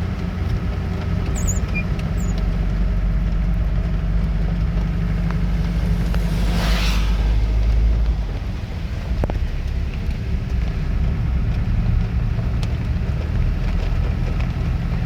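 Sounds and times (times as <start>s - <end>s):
car engine running: 0.0s - 15.0s
rush of hiss: 5.6s - 8.1s.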